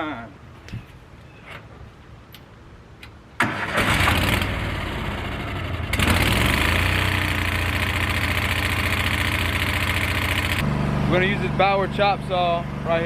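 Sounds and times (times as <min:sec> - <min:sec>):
generator engine starting and running: 0:03.4 - 0:13.0.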